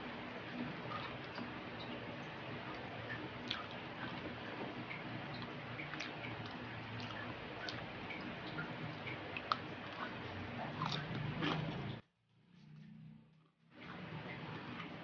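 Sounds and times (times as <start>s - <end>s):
liquid dripping: 0.0s - 12.0s
wet mouth chewing smacks: 9.4s - 11.8s.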